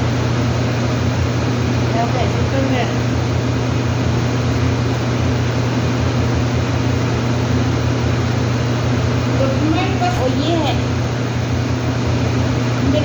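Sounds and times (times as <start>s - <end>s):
loud mechanical drone: 0.0s - 13.0s.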